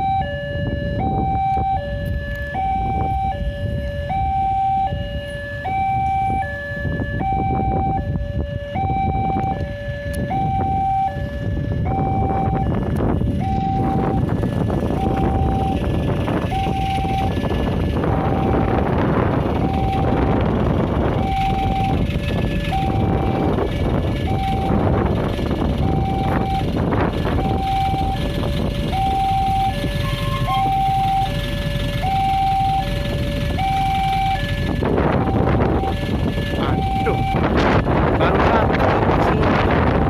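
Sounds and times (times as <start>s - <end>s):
road traffic noise: 0.0s - 40.0s
level crossing alarm two-note: 35.2s - 37.6s.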